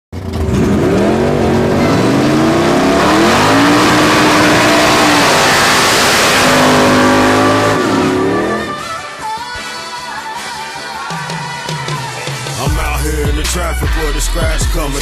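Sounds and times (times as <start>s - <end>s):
race car engine accelerating: 0.2s - 9.0s
loud rushing noise: 1.9s - 9.1s.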